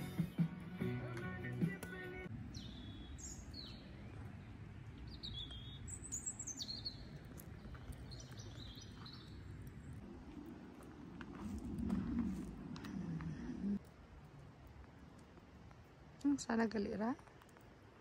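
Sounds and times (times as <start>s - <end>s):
background music: 0.0s - 2.3s
birds chirping: 0.0s - 10.0s.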